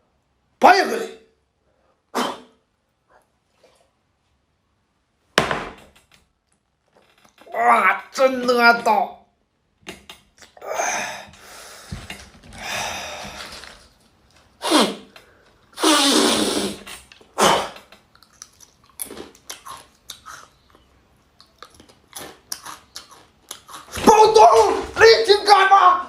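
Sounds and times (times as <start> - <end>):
mouth smacking and clicking: 9.8 - 10.6, 14.6 - 24.0
man gasping and exhaling: 10.6 - 13.8.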